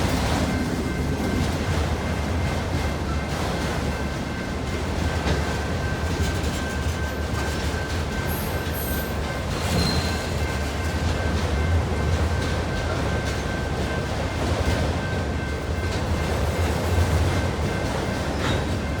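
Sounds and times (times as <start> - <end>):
freight train rumbling by: 0.0 - 19.0.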